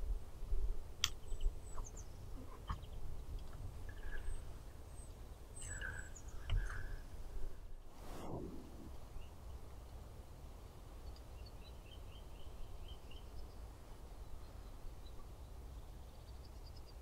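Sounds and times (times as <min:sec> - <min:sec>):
small birds chirping and calling: 0:01.0 - 0:07.1.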